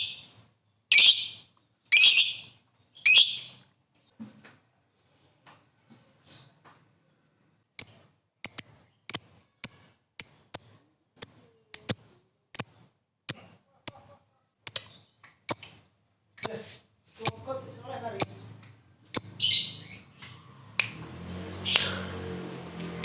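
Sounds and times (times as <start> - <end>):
bird chirping high-pitched: 0.0 - 3.8, 7.8 - 20.3.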